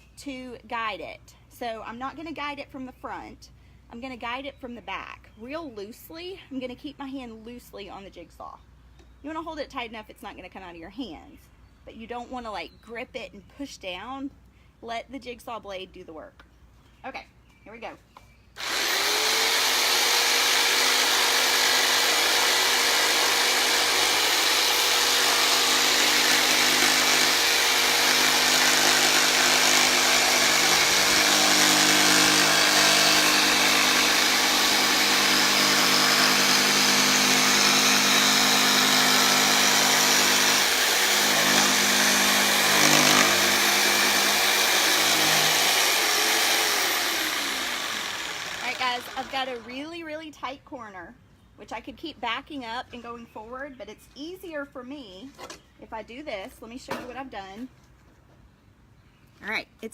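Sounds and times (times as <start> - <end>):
jigsaw sawing through wood: 18.6 - 49.8.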